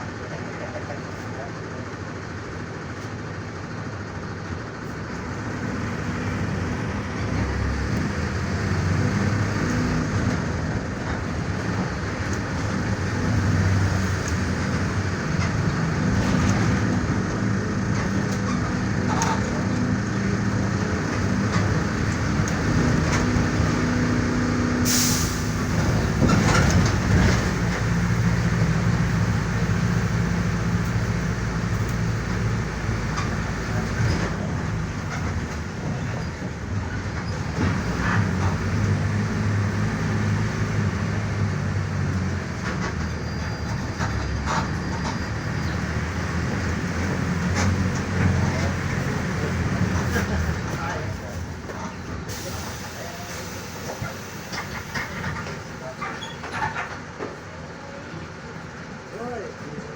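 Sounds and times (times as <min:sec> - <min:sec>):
bus diesel engine under load: 0:00.0 - 0:59.9
air brake hiss: 0:24.8 - 0:25.7, 0:52.3 - 0:54.5.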